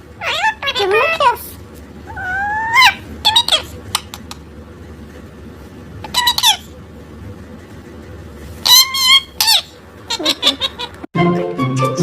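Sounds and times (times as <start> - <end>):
parrot squeaky calls: 0.2 - 1.4, 2.1 - 4.2, 6.0 - 6.7, 8.6 - 11.1.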